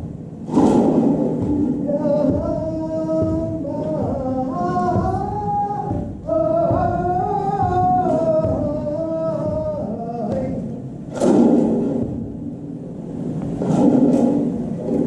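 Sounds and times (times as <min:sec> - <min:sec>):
man singing held phrases: 0:01.8 - 0:11.0.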